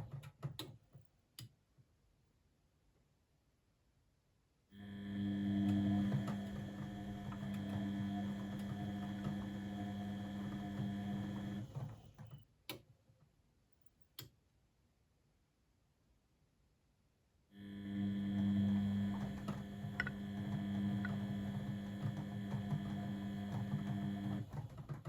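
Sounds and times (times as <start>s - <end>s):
washing machine drum motor humming: 4.9s - 12.0s, 17.7s - 25.0s.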